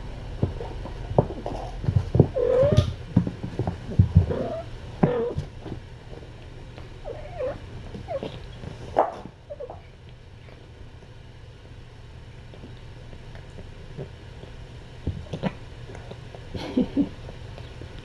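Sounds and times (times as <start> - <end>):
cats wrestling thumps and scuffles: 0.3 - 8.8.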